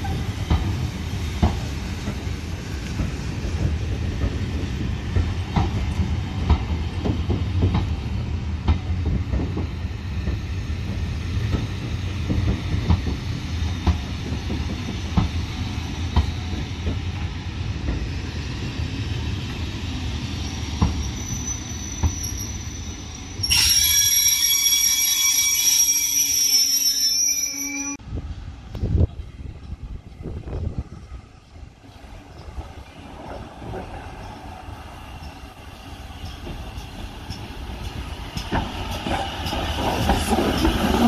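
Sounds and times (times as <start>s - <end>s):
train rumbling past: 0.0s - 26.8s, 27.4s - 41.0s
high-pitched wheel squeal: 20.4s - 28.0s
wheels clacking over rail joints: 32.3s - 41.0s.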